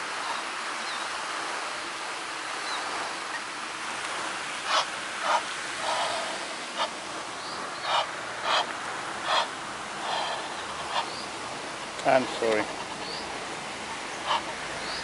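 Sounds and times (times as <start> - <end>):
steady rushing noise: 0.0 - 15.0
short animal calls: 7.8 - 11.1.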